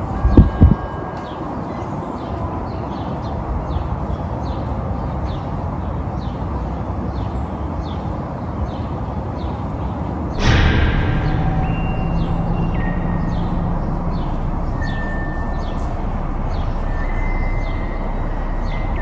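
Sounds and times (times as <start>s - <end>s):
low rushing noise: 10.3s - 19.0s
bird chirping: 10.4s - 19.0s.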